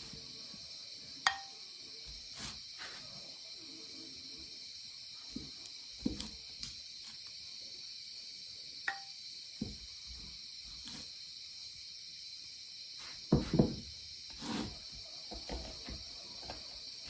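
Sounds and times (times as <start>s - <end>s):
crickets chirping: 0.0s - 17.0s
soft knocks and thumps: 5.3s - 6.4s, 9.6s - 10.4s, 13.3s - 13.9s.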